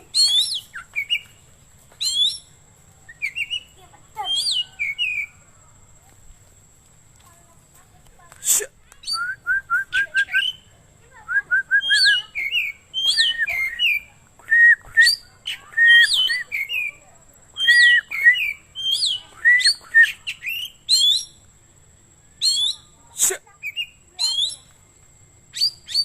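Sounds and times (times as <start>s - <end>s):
bird singing whistled song: 0.1s - 1.4s, 2.0s - 5.4s, 9.0s - 21.5s, 22.2s - 23.0s, 23.6s - 24.8s, 25.5s - 26.0s.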